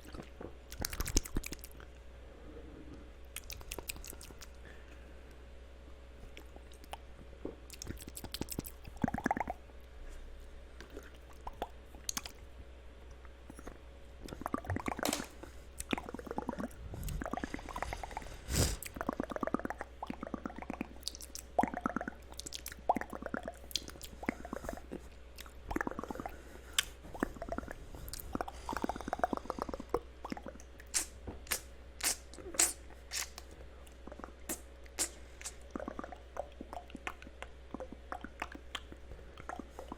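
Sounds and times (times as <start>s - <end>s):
wet mouth clicks and smacks: 0.0s - 1.9s, 3.3s - 4.6s, 7.7s - 9.6s, 10.8s - 12.4s, 18.8s - 24.4s, 25.3s - 39.9s.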